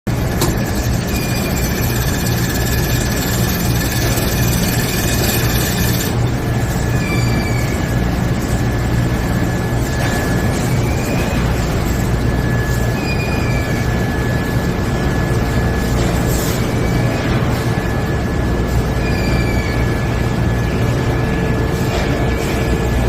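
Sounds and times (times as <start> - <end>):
electric motor hum: 0.1 - 6.4.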